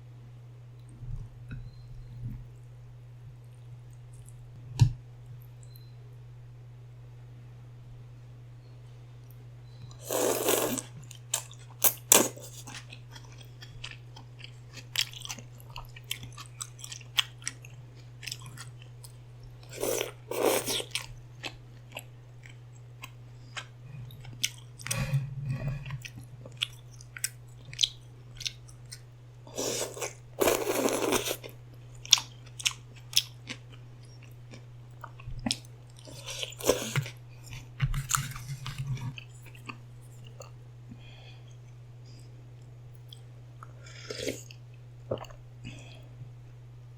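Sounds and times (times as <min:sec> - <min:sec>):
steady low hum: 0:00.0 - 0:46.9
chewing with mouth clicks: 0:10.4 - 0:25.0, 0:25.8 - 0:29.0.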